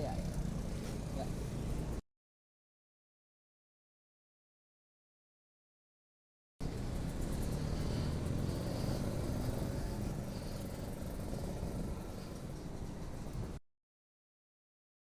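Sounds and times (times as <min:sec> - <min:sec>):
road noise: 0:00.0 - 0:02.0, 0:06.6 - 0:13.6
vehicle engine running: 0:00.0 - 0:02.0, 0:06.6 - 0:13.6.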